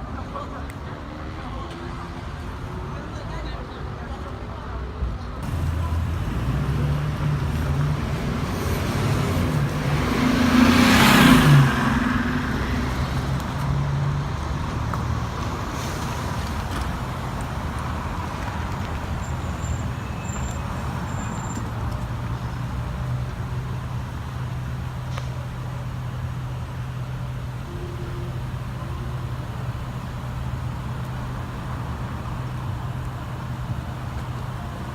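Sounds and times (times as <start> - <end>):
traffic engines humming: 0.0 - 34.9
vehicle driving past: 5.4 - 16.6.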